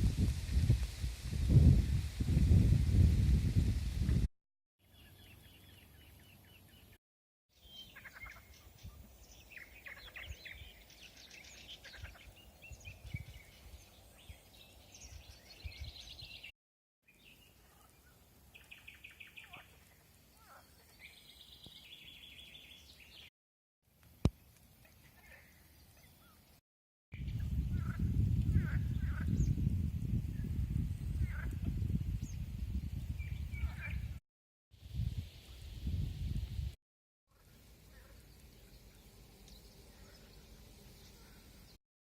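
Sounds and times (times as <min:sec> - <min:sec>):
songbirds chirping and trilling: 0:04.8 - 0:07.0, 0:07.6 - 0:16.5, 0:17.1 - 0:23.3, 0:24.7 - 0:26.6, 0:27.2 - 0:34.2, 0:37.4 - 0:41.8.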